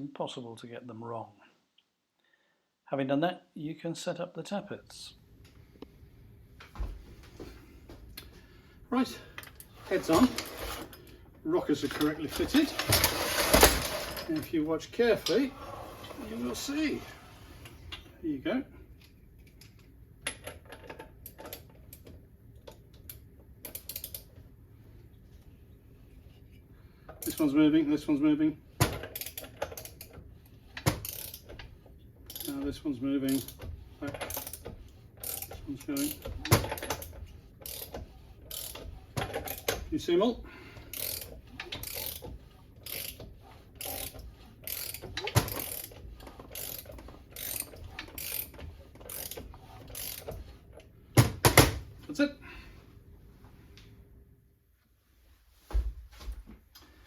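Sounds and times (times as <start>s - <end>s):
ratchet clicking: 23.0s - 24.3s, 28.9s - 31.7s, 32.3s - 32.6s, 33.3s - 39.9s, 40.9s - 50.5s.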